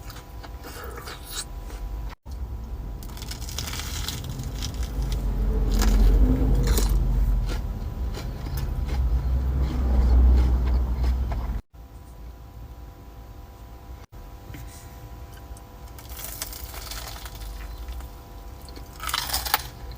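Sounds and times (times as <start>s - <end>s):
steady low rumble: 1.4s - 19.9s
biting and chewing crispy food: 3.0s - 11.6s, 15.3s - 19.9s.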